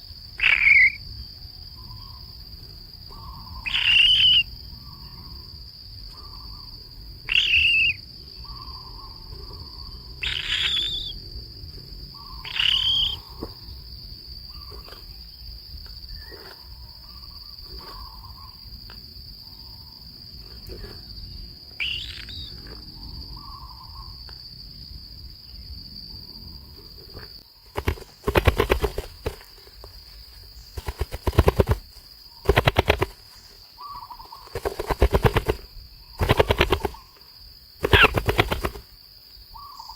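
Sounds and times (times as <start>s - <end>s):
bird calls: 0.0s - 1.0s, 3.1s - 5.5s, 6.1s - 11.2s, 11.8s - 13.9s, 14.5s - 18.7s, 19.5s - 24.2s, 27.5s - 38.9s, 39.5s - 39.9s
high insect drone: 0.0s - 39.9s
rapid rattling pulses: 27.7s - 29.8s, 30.6s - 33.5s, 34.4s - 37.2s, 37.8s - 38.9s.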